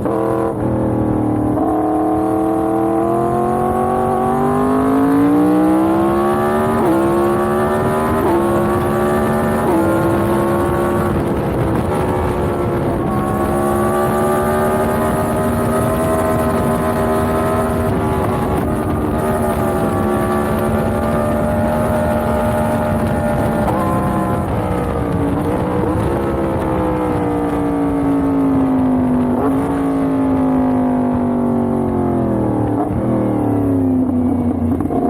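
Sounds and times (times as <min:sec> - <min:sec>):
motorcycle engine accelerating: 0:00.0 - 0:35.0
quick gear upshifts: 0:03.6 - 0:28.6.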